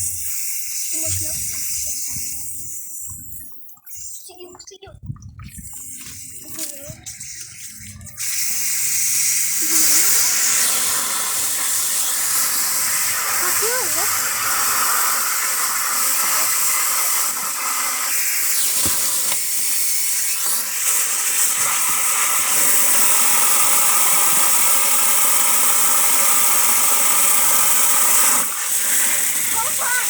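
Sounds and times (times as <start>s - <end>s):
water spraying under pressure: 0.0s - 4.7s, 5.4s - 30.0s.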